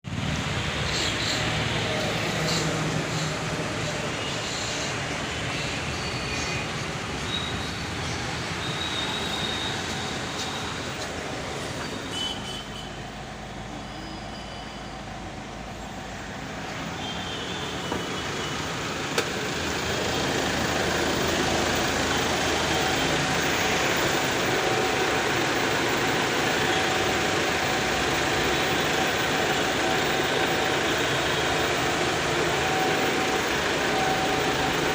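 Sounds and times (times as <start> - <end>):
car engine running: 18.0 - 34.9.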